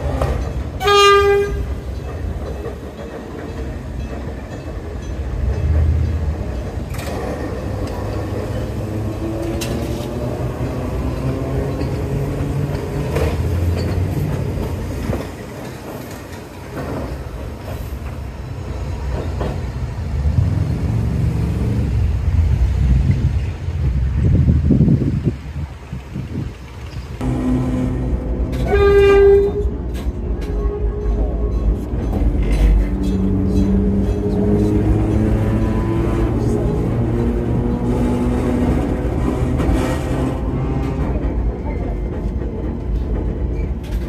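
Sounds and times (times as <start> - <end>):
wheels clicking on rails: 0.0 - 23.9, 25.6 - 44.0
train rumbling past: 0.0 - 44.0
train horn blast: 0.8 - 1.7, 27.2 - 29.8.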